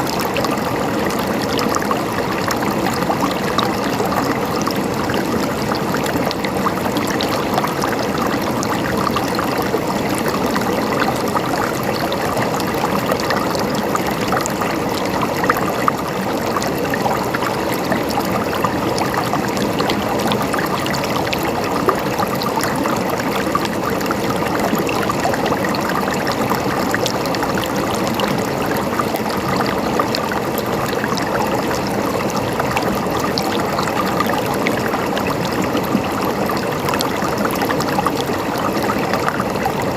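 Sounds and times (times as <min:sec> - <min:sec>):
river water babbling over stones: 0:00.0 - 0:39.9.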